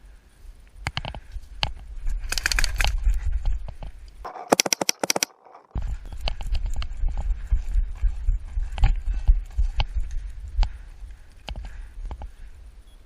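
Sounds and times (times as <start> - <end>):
paintball markers firing: 4.3 - 5.6
steady low rumble: 5.8 - 13.0.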